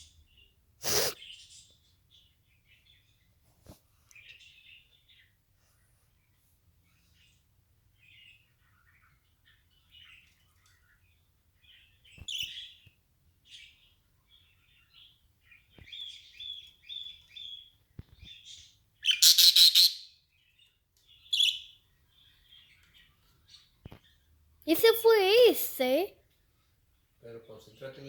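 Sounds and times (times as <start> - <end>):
pet birds chirping: 0.0 - 28.0
bird trilling: 19.0 - 20.0.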